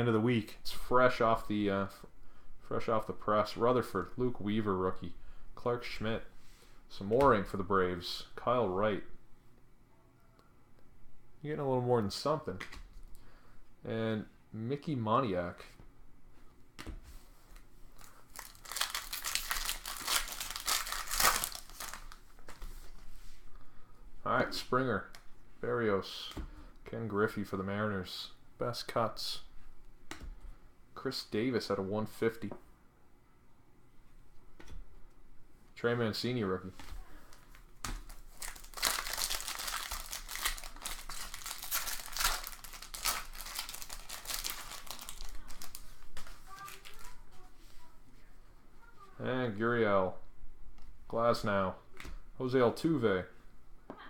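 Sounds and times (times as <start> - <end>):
wrapper crinkling and tearing: 18.0 - 22.3, 37.3 - 47.2.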